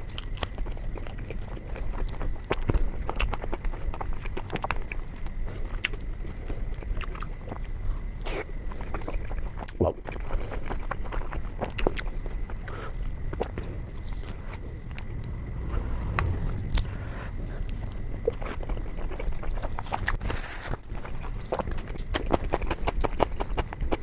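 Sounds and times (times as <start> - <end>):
close chewing and mouth sounds: 0.0 - 16.8, 18.2 - 24.0.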